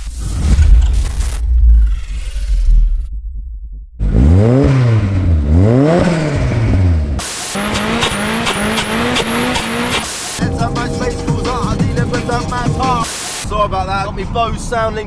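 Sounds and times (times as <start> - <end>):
engine at high revs while drifting: 4.0 - 10.3
car engine revving: 4.0 - 13.5.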